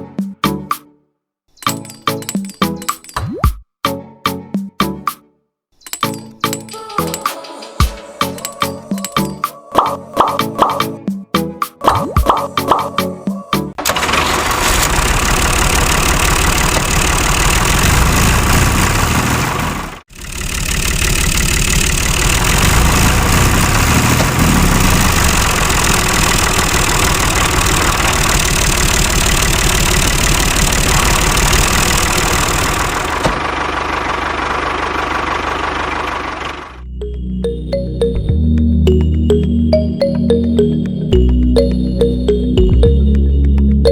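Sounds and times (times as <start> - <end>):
small engine knocking: 13.8 - 36.7.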